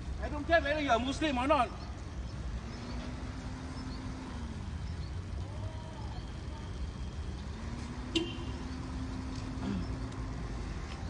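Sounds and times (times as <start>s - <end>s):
faint engine hum: 0.0s - 11.0s
vehicle engines rumbling: 0.0s - 11.0s.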